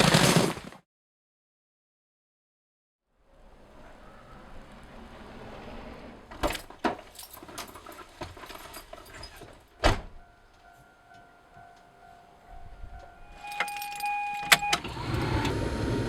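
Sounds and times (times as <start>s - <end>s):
keys jangling: 6.5s - 9.9s, 13.3s - 14.6s
electronic chime tone: 10.2s - 14.8s.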